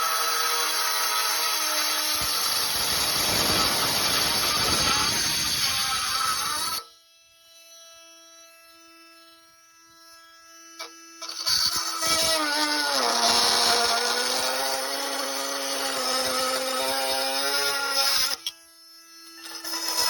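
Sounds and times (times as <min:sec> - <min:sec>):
blade cutting through metal: 0:00.0 - 0:06.9, 0:11.2 - 0:18.6, 0:19.2 - 0:20.0
power cutting tool whining: 0:00.0 - 0:07.0, 0:09.9 - 0:20.0.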